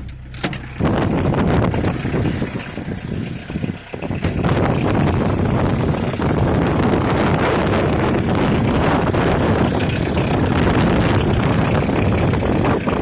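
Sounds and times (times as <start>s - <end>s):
diesel engine running: 0.0s - 13.0s
wind buffeting microphone: 0.7s - 13.0s.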